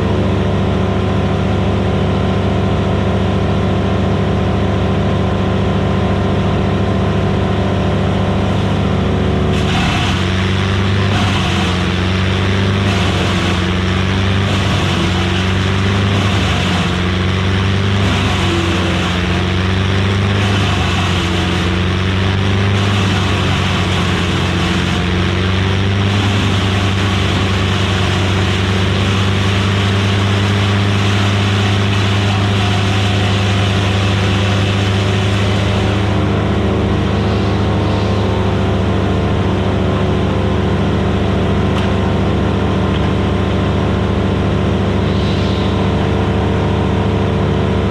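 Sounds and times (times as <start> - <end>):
wood chipper engine: 0.0 - 47.9
chipper grinding hiss: 7.6 - 39.8, 43.0 - 47.9.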